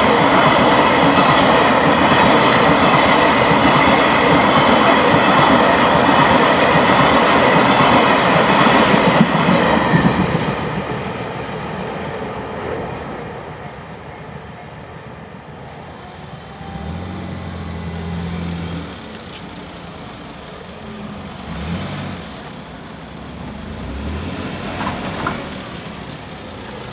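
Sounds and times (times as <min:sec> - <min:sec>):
train rumbling: 0:00.0 - 0:26.9
road vehicles passing: 0:15.5 - 0:26.9.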